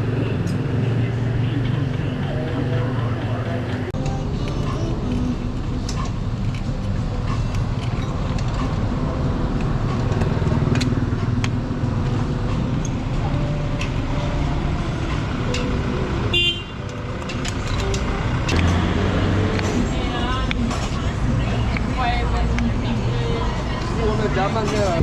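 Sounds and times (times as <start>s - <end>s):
vehicle engines passing: 0.0s - 25.0s
car horn toot: 16.3s - 17.0s.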